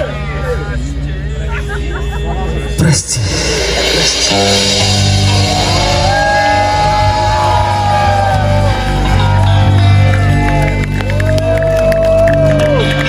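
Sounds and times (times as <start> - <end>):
live rock band playing: 0.2 - 13.0
sliding lead guitar line: 2.7 - 11.5
held low bass note: 2.8 - 10.8.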